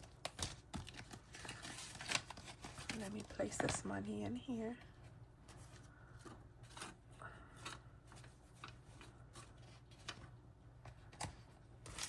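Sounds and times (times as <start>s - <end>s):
paper money rustling and clicking: 0.0s - 4.0s, 7.6s - 12.0s.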